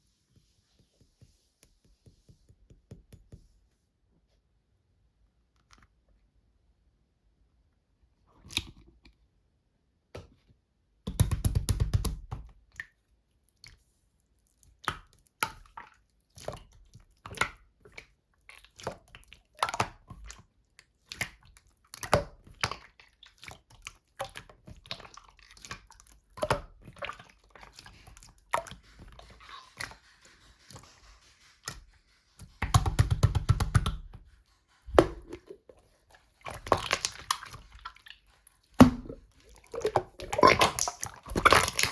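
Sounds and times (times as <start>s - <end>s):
slime squished by hand: 36.4s - 41.9s.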